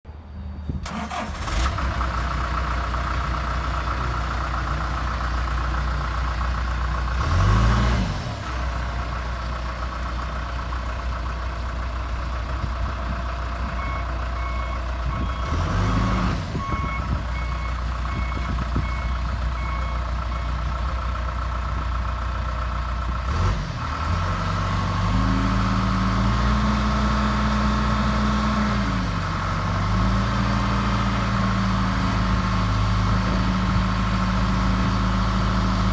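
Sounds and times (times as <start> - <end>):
diesel engine revving: 0.7 - 35.9.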